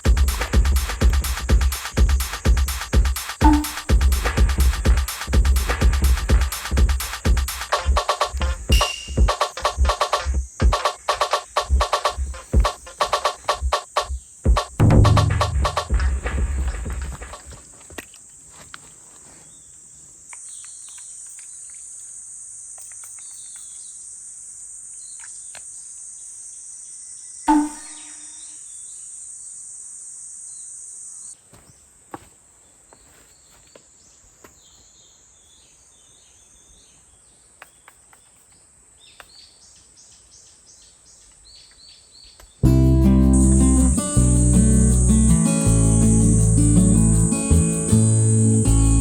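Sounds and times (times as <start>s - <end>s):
insect chorus drone: 0.0s - 3.4s, 4.3s - 31.4s, 33.7s - 49.0s
faint chirps: 6.6s - 14.8s.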